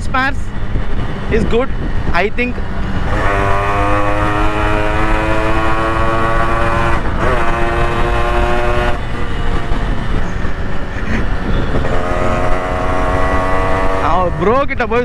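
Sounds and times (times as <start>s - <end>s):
engine and road noise: 0.0s - 15.0s
motorcycle horn blasts: 3.1s - 9.0s.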